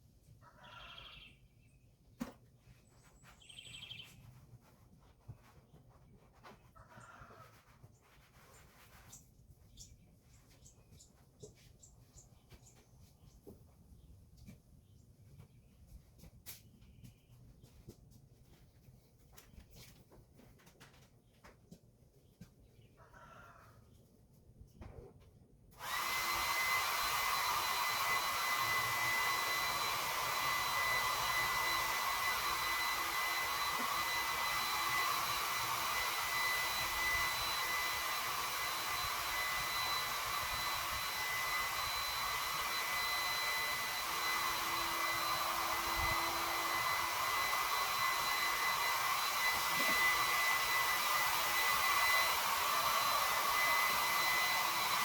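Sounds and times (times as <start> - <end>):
heat gun blowing air: 25.7 - 55.0.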